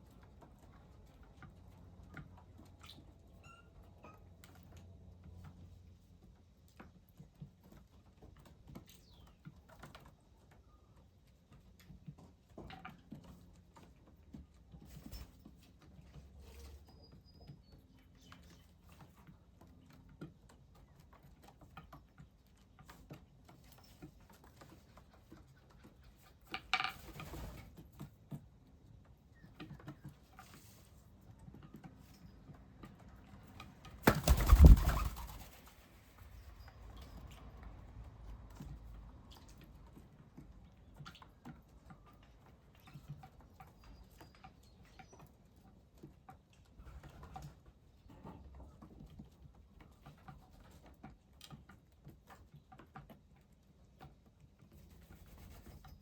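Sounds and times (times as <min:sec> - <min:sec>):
birds pecking and pattering: 0:00.0 - 0:56.0
bird wing flurry: 0:34.0 - 0:35.9.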